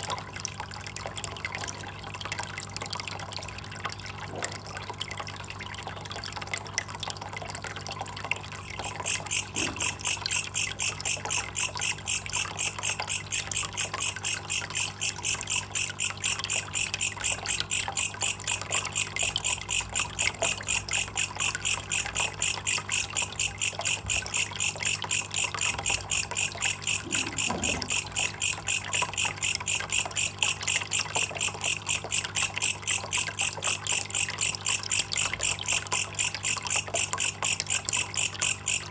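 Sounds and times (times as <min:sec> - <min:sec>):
water trickling: 0:00.0 - 0:38.9
pulsed high chirping call: 0:08.8 - 0:38.9.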